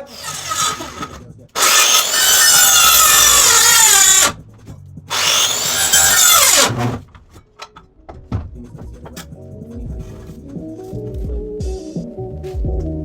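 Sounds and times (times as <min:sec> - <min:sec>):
power saw cutting wood: 0:00.0 - 0:04.4, 0:05.1 - 0:07.0.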